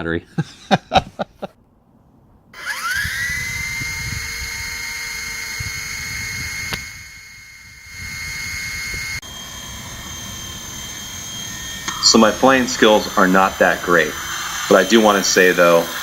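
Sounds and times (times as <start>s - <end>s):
toy helicopter motor whine: 2.6s - 16.0s
click: 6.7s - 6.9s.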